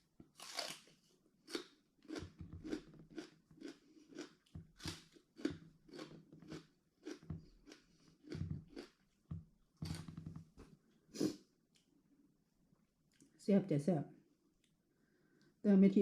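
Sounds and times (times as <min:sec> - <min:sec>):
person crunching raw vegetables: 0:00.3 - 0:10.2.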